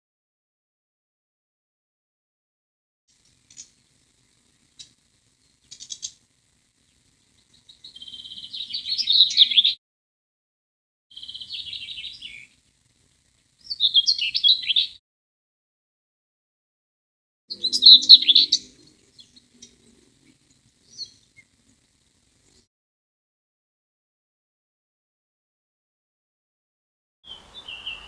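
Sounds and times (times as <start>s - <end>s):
songbirds twittering: 3.1s - 9.8s, 11.1s - 15.0s, 17.5s - 22.6s, 27.3s - 28.0s.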